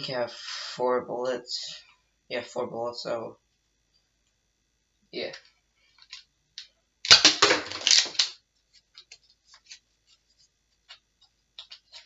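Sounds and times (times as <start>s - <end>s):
toy blaster plastic pop: 7.1s - 8.3s
darts clattering: 7.1s - 8.4s.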